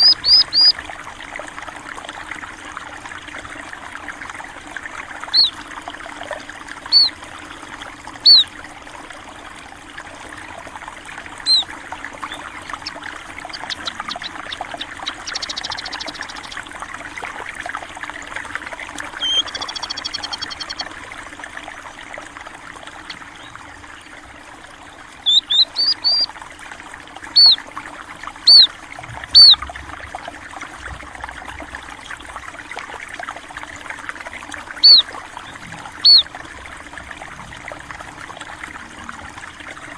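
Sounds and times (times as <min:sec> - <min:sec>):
small birds chirping: 0:00.0 - 0:00.8, 0:05.2 - 0:05.6, 0:06.8 - 0:08.6, 0:11.4 - 0:16.7, 0:19.0 - 0:21.0, 0:23.0 - 0:24.1, 0:25.2 - 0:26.3, 0:27.3 - 0:27.6, 0:28.4 - 0:29.7, 0:34.8 - 0:36.4
water flowing and trickling: 0:00.0 - 0:39.9.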